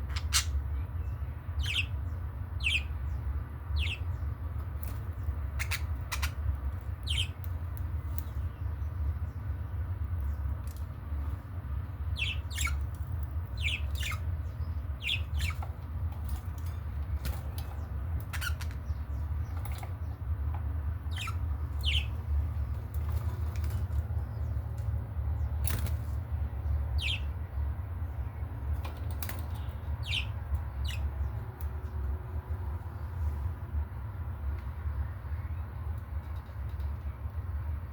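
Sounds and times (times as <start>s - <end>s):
budgerigars chirping: 0.0s - 4.2s, 4.8s - 7.5s, 12.0s - 20.2s, 20.9s - 22.3s, 26.6s - 27.4s, 29.2s - 32.0s
steady low rumble: 0.0s - 37.9s.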